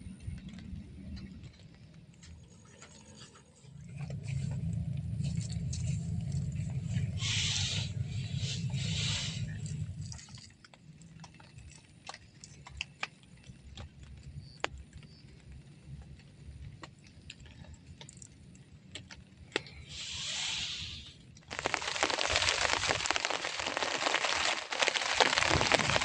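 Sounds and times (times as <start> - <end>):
low rumble: 0.0 - 10.3
water drips ticking: 0.0 - 19.8, 21.2 - 26.0
hissing noise: 4.3 - 10.2, 19.9 - 26.0.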